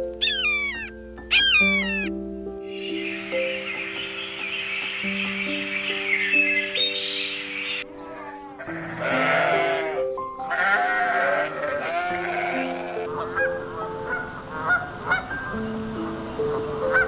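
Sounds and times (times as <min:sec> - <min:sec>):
background music: 0:00.0 - 0:17.0
animal calls: 0:00.2 - 0:02.1, 0:12.6 - 0:17.0.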